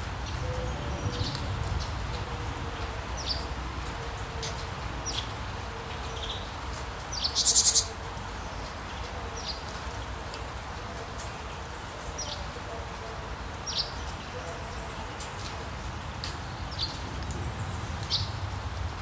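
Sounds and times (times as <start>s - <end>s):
low rumble and hiss: 0.0s - 6.2s.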